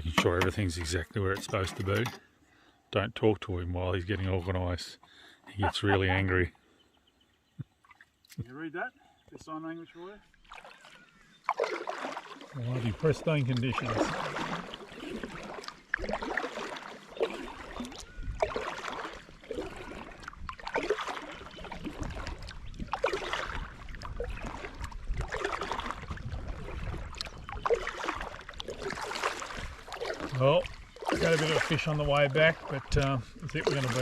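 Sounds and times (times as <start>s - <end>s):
kayak paddle splashing: 7.6s - 8.6s, 10.0s - 34.0s.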